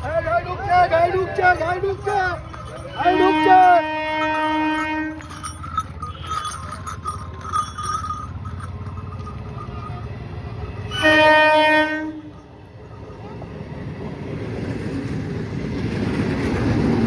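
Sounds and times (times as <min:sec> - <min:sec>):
clicks of train wheels: 0:00.0 - 0:11.5
train rumbling on rails: 0:00.0 - 0:17.0
train horn blast: 0:03.0 - 0:05.4, 0:10.9 - 0:12.4.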